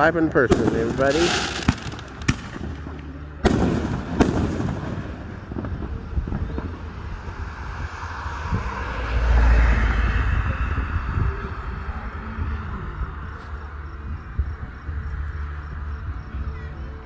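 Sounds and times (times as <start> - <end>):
fireworks crackling: 0.0 - 8.7
fireworks bangs: 0.4 - 7.8
deep rumble: 0.5 - 17.0.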